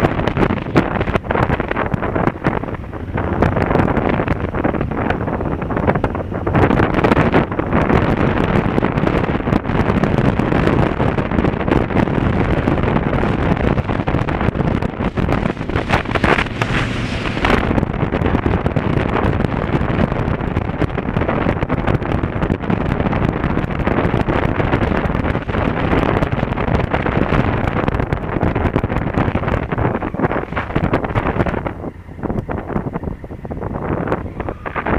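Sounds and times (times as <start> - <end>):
motorcycle engine: 0.0 - 21.2
road noise: 0.0 - 34.9
wind buffeting microphone: 0.0 - 34.9.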